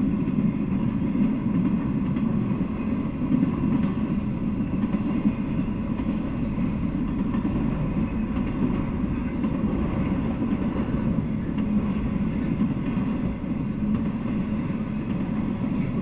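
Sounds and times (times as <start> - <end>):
freight train wheels rumbling: 0.0 - 16.0.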